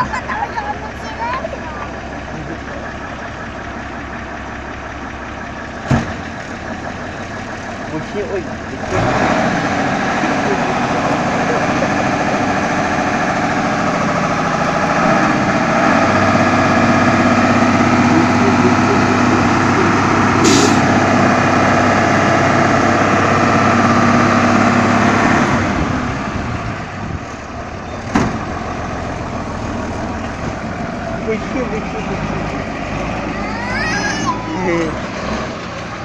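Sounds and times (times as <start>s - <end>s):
truck engine running: 0.0s - 36.0s
sharp knock: 5.9s - 6.2s, 20.4s - 20.9s.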